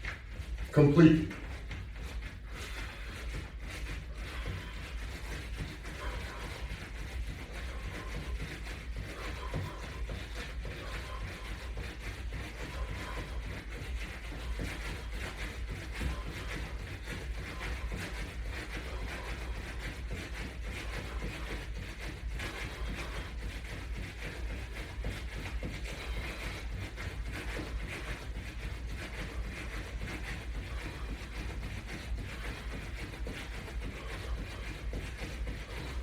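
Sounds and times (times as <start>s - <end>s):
footfalls of jogging: 0.0s - 36.0s
low room rumble: 0.0s - 36.0s.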